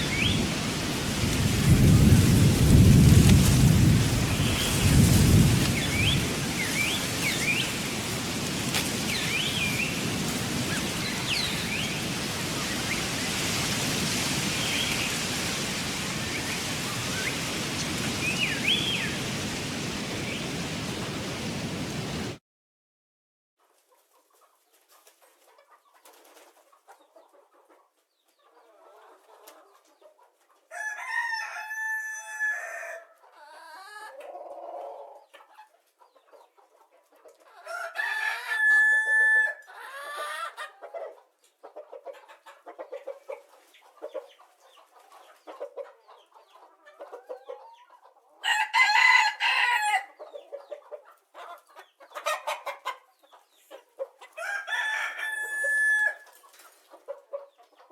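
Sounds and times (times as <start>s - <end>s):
chicken clucking: 23.6s - 30.7s, 33.2s - 37.9s, 39.1s - 48.4s, 50.1s - 54.6s, 55.2s - 57.9s
rooster crowing: 30.7s - 33.0s, 37.7s - 40.4s, 48.4s - 50.2s, 54.4s - 56.3s.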